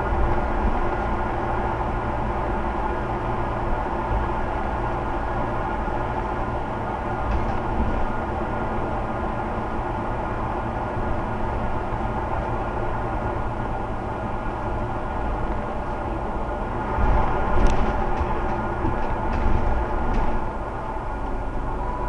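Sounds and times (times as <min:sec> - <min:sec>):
bus engine running: 0:00.0 - 0:22.0.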